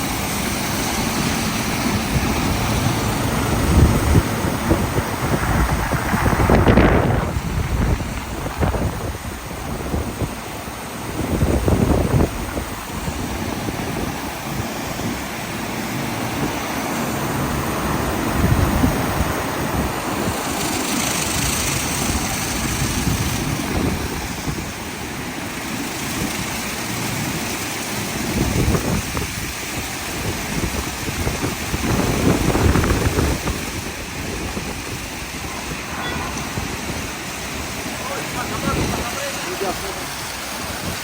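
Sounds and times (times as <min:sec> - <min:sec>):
water spraying: 0:00.0 - 0:41.0
rotating brushes: 0:19.9 - 0:23.8.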